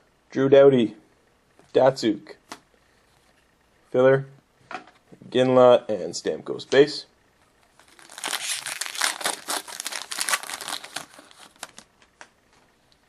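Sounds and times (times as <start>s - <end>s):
wrapper crinkling and tearing: 7.8s - 11.9s.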